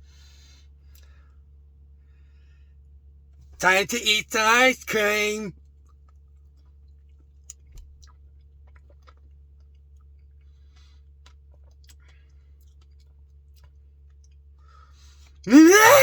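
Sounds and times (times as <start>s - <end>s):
wordless vocal cry: 3.6s - 5.5s, 15.5s - 16.0s.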